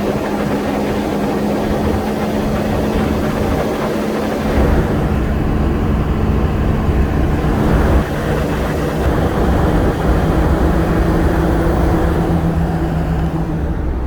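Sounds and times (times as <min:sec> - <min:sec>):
diesel engine rumbling: 0:04.4 - 0:14.0.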